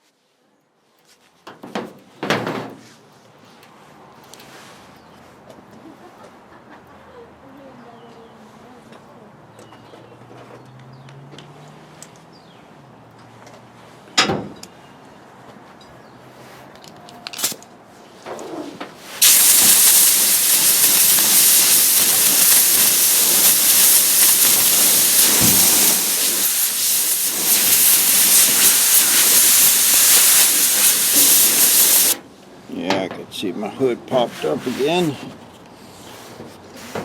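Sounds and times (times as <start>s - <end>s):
welder crackling hiss: 19.2s - 32.2s.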